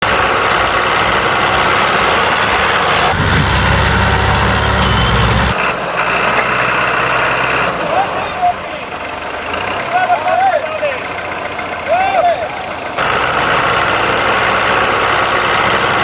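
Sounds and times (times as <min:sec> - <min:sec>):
deeper loud engine note: 0:00.0 - 0:10.0
diesel tractor engine under load: 0:00.0 - 0:16.0.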